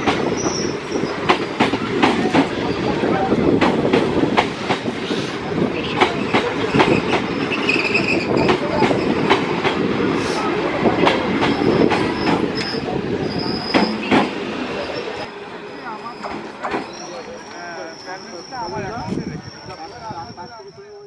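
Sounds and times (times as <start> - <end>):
train wheels rumbling: 0.0 - 21.0
high wheel squeals: 0.2 - 1.6, 5.8 - 9.3, 11.5 - 21.0.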